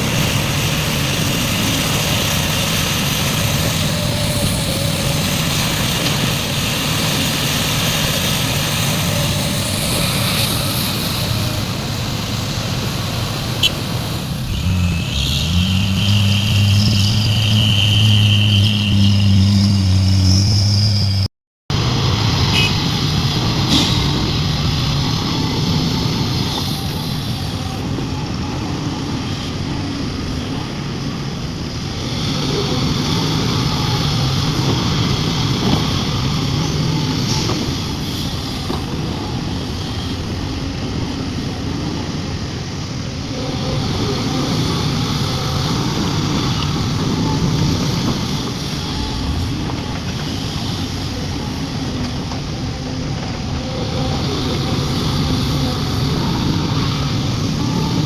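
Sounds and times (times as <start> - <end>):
diesel excavator engine running: 0.0 - 29.0.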